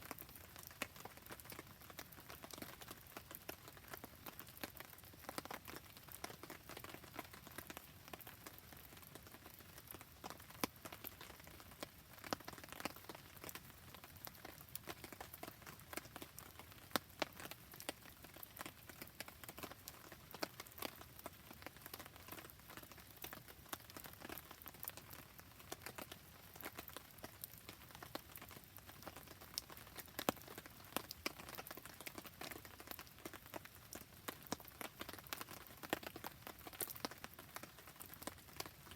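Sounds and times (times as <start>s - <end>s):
rain patter: 0.0s - 38.9s
campfire crackling and popping: 0.1s - 38.9s.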